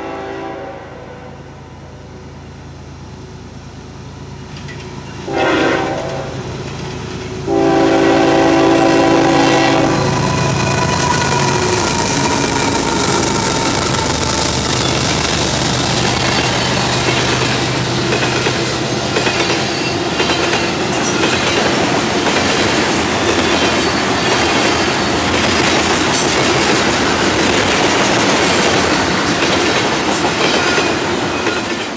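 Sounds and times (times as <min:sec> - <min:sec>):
freight train rolling past: 0:00.0 - 0:31.9
wheels clicking over rail joints: 0:04.4 - 0:05.3, 0:05.9 - 0:07.6, 0:10.1 - 0:31.9.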